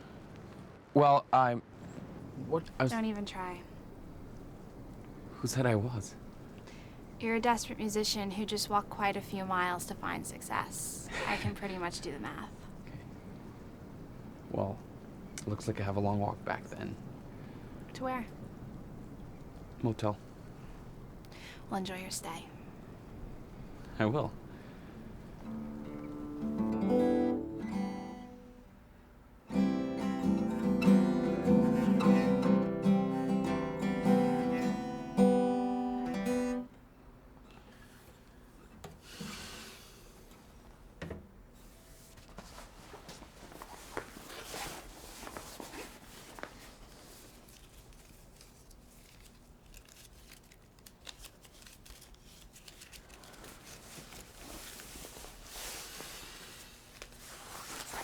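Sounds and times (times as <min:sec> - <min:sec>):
acoustic guitar plucking: 0:25.4 - 0:28.6, 0:29.5 - 0:36.7
faint rustling: 0:37.4 - 0:58.0.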